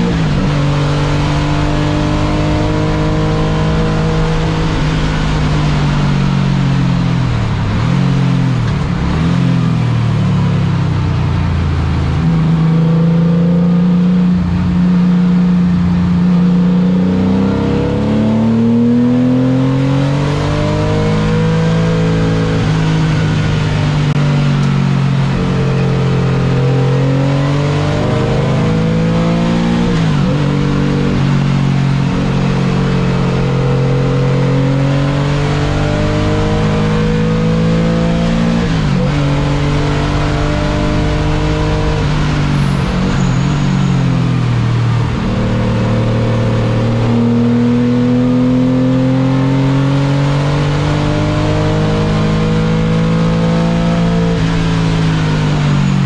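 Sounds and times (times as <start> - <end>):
race car engine accelerating: 0.0 - 10.5, 11.8 - 56.0.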